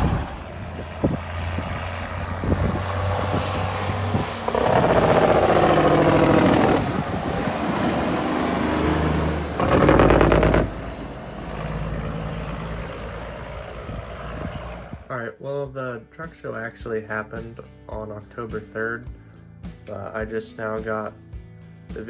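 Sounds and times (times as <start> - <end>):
diesel truck engine revving: 0.0 - 15.1.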